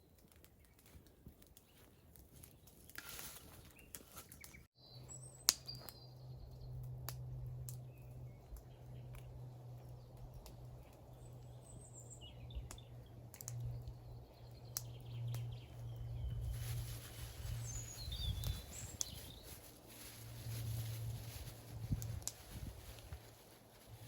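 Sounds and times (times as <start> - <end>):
bird chirps: 3.8 - 6.9, 7.8 - 19.6.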